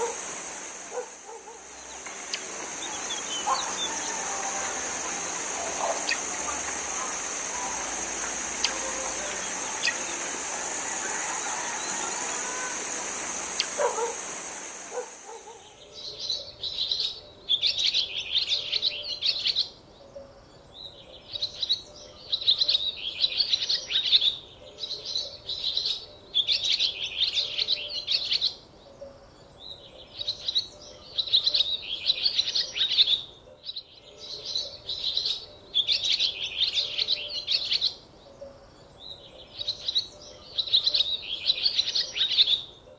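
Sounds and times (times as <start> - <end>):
steady rushing noise: 0.0 - 15.3
bird chirping: 0.9 - 19.6.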